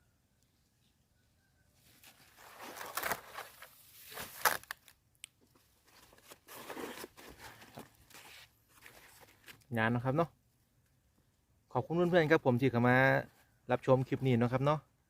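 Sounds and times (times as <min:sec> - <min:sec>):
rustling and crunching: 0:01.8 - 0:09.7.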